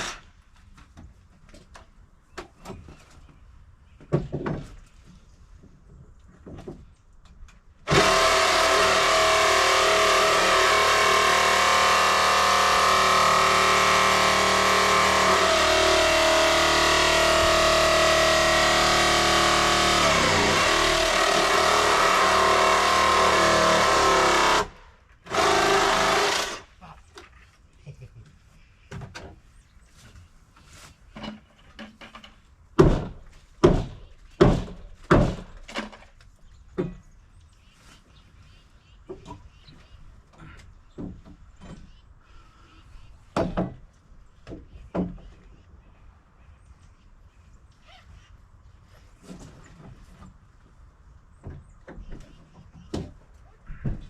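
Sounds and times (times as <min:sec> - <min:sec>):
wooden knocks and clunks: 0:00.5 - 0:07.6, 0:28.8 - 0:30.2, 0:31.1 - 0:37.2, 0:39.0 - 0:42.0, 0:43.2 - 0:45.6, 0:51.3 - 0:54.0
electric power tool motor: 0:07.9 - 0:26.7.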